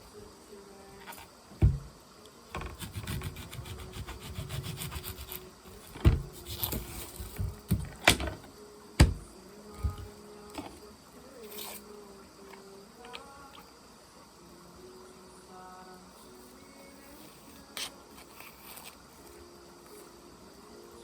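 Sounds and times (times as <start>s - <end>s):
knife cutting on wooden board: 2.6s - 5.4s.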